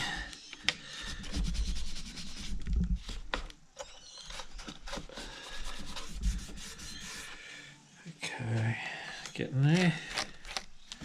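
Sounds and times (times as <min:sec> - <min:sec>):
rubbing and scraping: 0:00.9 - 0:03.5, 0:04.2 - 0:07.4.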